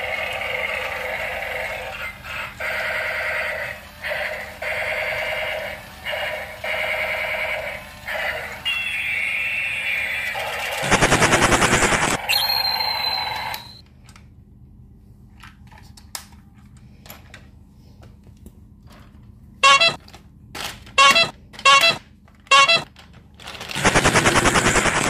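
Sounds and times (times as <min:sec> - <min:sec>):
toy machine-gun rattle: 0:10.3 - 0:12.3, 0:22.5 - 0:25.0
short pitched toy toots: 0:21.0 - 0:22.9.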